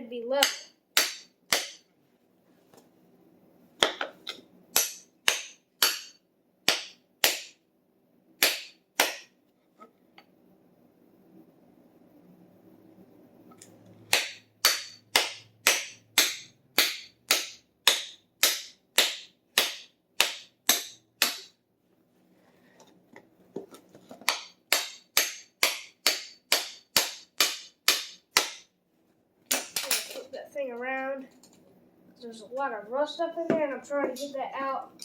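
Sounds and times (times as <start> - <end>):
hammer striking steel: 0.4 - 1.9, 4.8 - 7.6, 8.4 - 9.4, 14.1 - 21.6, 24.3 - 28.7.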